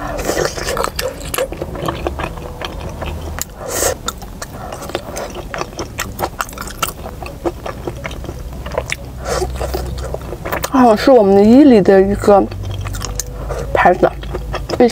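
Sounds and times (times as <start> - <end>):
low steady rumble: 0.0 - 14.9
wet mouth chewing: 0.0 - 14.9.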